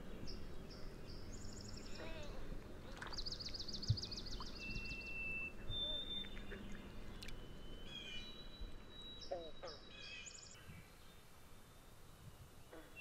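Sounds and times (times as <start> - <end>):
whistled bird notes: 3.2 - 10.8.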